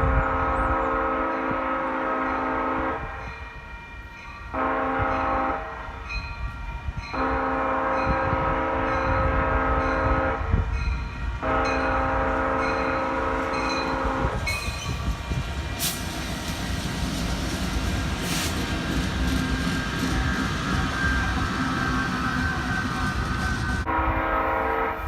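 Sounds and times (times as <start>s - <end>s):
locomotive air horn blasts: 0.0s - 3.3s, 4.5s - 6.0s, 7.1s - 10.7s, 11.4s - 14.7s, 23.8s - 25.0s
train rumbling: 0.0s - 25.0s
wind buffeting microphone: 0.0s - 25.0s.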